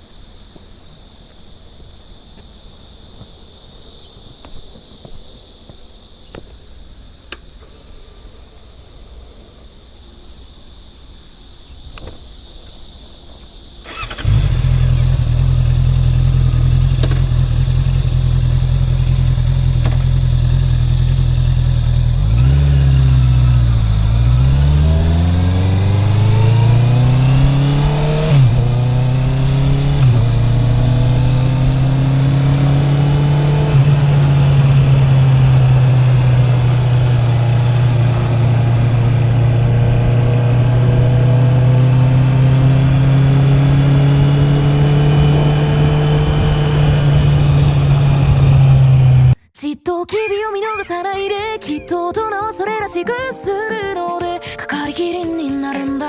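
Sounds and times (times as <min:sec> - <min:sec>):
gear upshifts: 0:13.8 - 0:49.4
motorcycle engine accelerating: 0:13.8 - 0:49.4.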